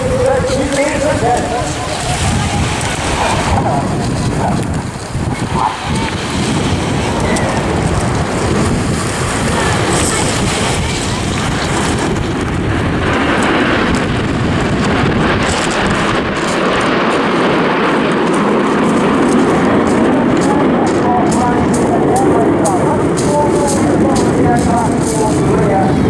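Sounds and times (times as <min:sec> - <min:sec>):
jet engines roaring: 0:00.0 - 0:26.0
wind buffeting microphone: 0:00.0 - 0:26.0.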